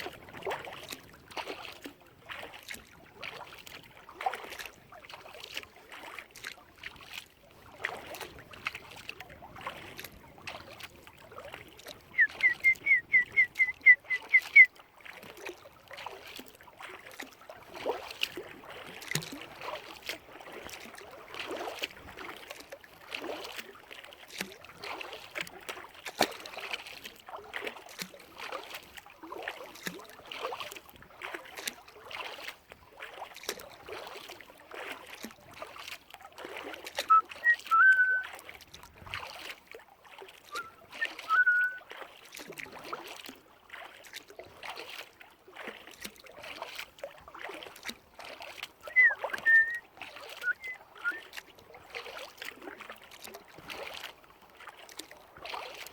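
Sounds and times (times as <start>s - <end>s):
kayak paddle splashing in water: 0.0s - 55.9s
short high whistled notes: 12.2s - 14.7s, 37.1s - 38.2s, 40.6s - 41.8s, 48.9s - 49.8s, 50.4s - 51.2s.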